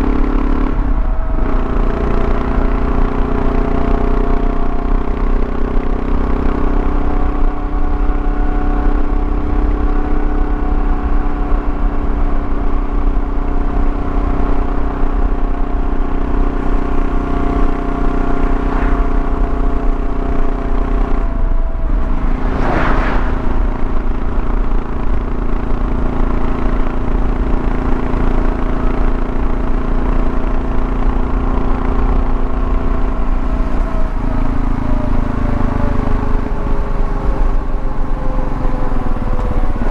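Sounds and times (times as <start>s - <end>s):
motorcycle engine running: 0.0s - 22.7s, 23.5s - 39.9s
road noise: 0.0s - 39.9s
whoosh: 18.3s - 19.7s, 21.6s - 25.3s.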